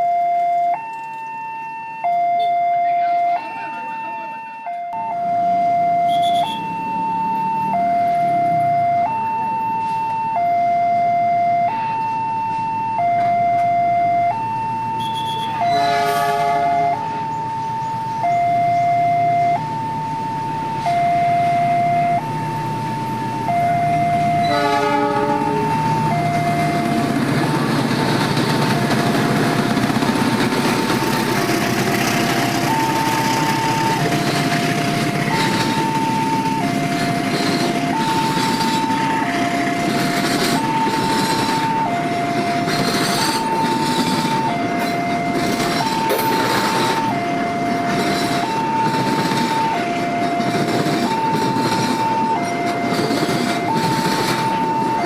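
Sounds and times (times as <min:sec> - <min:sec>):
level crossing warning alarm: 0:00.0 - 0:55.0
diesel locomotive horn: 0:06.0 - 0:06.7, 0:15.0 - 0:17.2, 0:23.6 - 0:27.8
freight train rumbling past: 0:15.7 - 0:16.9, 0:21.2 - 0:55.0.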